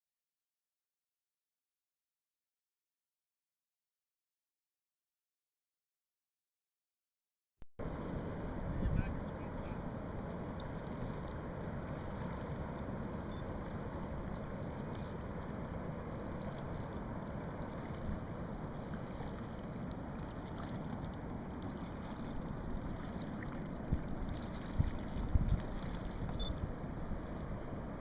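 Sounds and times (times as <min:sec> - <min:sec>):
water rushing: 0:07.8 - 0:28.0.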